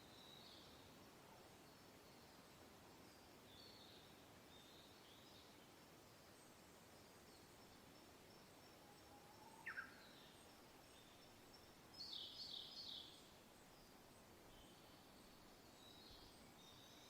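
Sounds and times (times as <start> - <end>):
birdsong with high whistles: 9.5 - 10.2.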